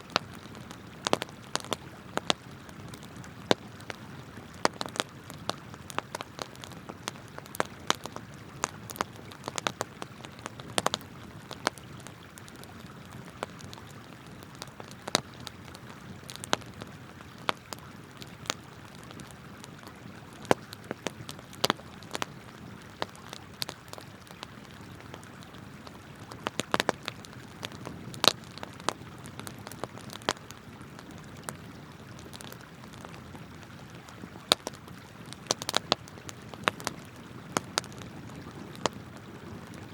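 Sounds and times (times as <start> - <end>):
campfire crackling and popping: 0.0 - 39.9
flowing river water: 0.0 - 39.9.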